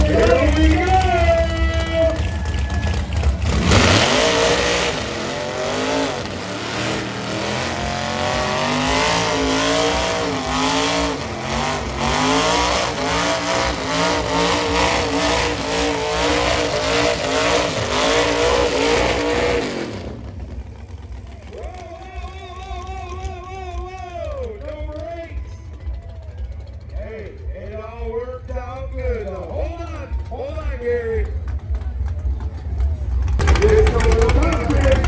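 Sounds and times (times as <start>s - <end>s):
truck engines revving hard: 0.0s - 35.0s.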